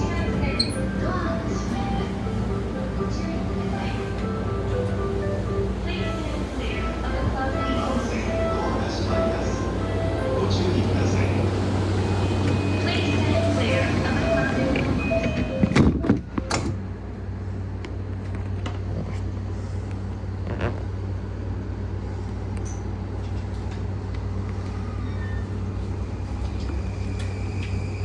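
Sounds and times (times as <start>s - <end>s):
train running gear hum: 0.0s - 28.0s.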